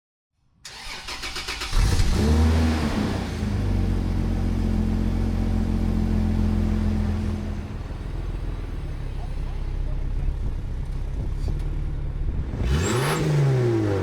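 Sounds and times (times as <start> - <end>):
engine starter cranking: 0.7 - 2.1
car engine revving and idling: 1.4 - 14.0.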